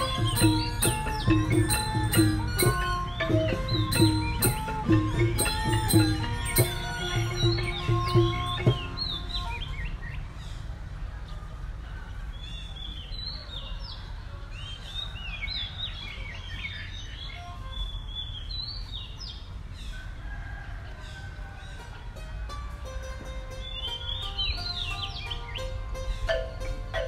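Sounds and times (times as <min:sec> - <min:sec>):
birds chirping and calling: 0:00.0 - 0:11.5, 0:23.2 - 0:27.0.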